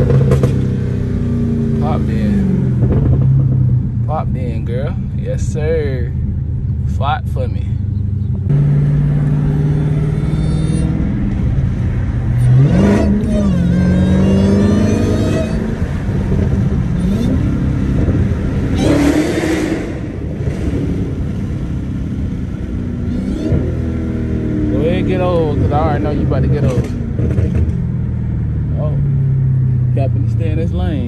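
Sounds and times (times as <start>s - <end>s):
supercharger whine: 0.0s - 31.0s
car engine revving hard: 8.5s - 27.8s.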